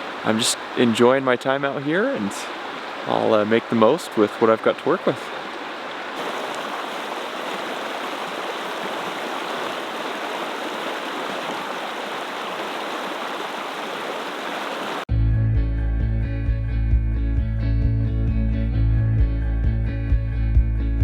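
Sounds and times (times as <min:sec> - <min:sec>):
river water flowing: 0:00.0 - 0:15.1.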